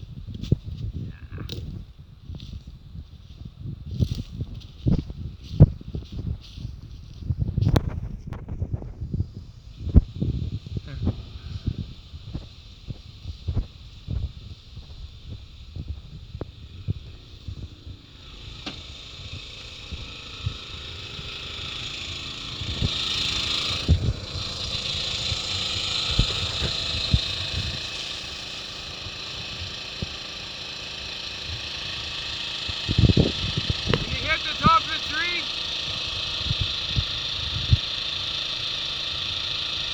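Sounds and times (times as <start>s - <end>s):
engine running: 0.0s - 39.9s
hissing rush: 10.6s - 39.9s.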